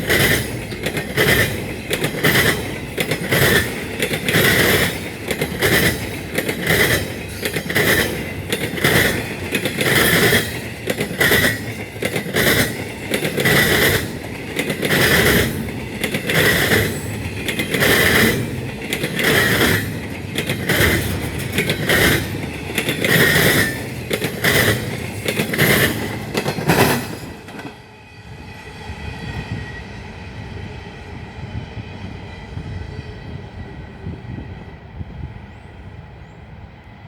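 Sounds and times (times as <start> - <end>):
wheels clattering over rail joints: 0.0 - 27.8
freight train cars rolling past: 0.0 - 37.0.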